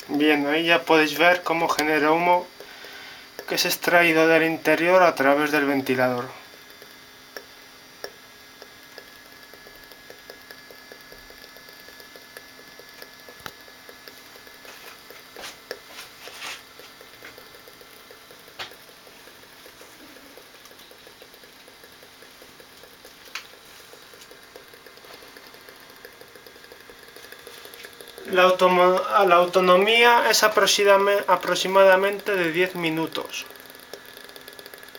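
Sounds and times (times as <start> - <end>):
small electric fan whirring: 0.0 - 34.9
soft crackle of heating fluid: 0.0 - 34.9
sharp clicks: 6.6 - 15.8.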